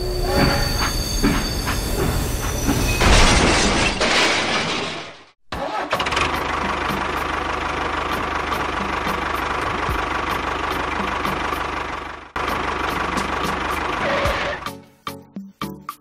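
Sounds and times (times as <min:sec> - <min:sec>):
tractor engine chugging: 0:05.6 - 0:14.6.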